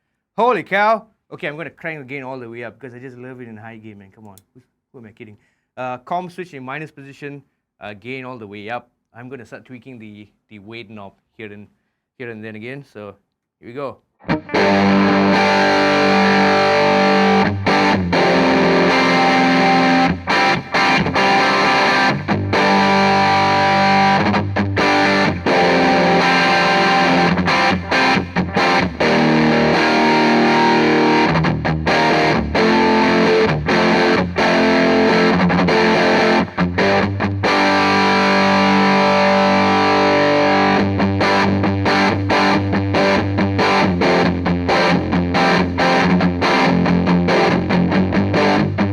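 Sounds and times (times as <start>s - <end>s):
distorted electric guitar riffs: 14.2s - 48.9s.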